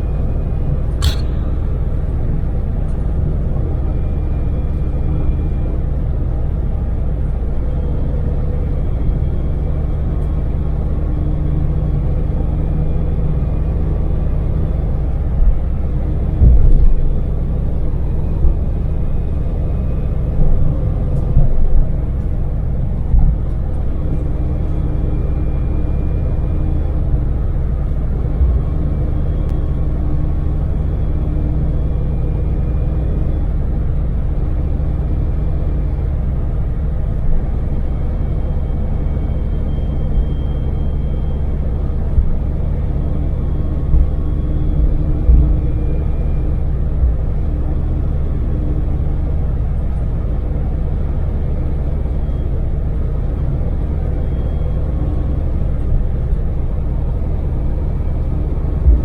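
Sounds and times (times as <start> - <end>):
van engine and road rumble: 0.0 - 59.0
short thumps: 1.0 - 2.3.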